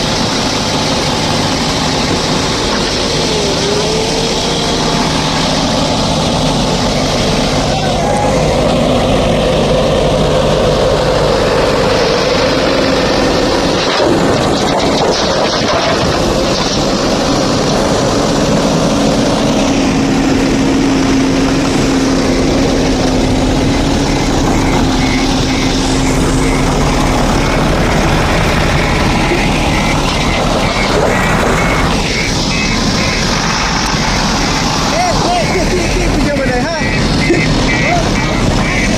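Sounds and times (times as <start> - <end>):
backhoe diesel engine under load: 0.0 - 38.9
faint repeated beeping: 21.9 - 38.9.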